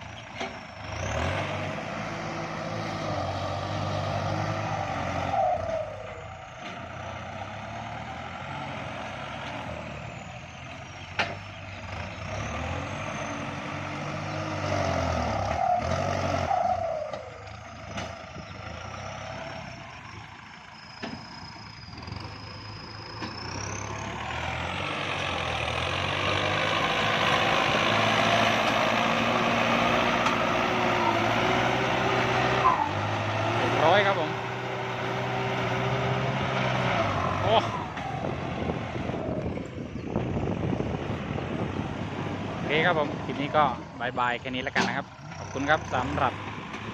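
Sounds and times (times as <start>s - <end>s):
tractor diesel engine under load: 0.0s - 46.9s.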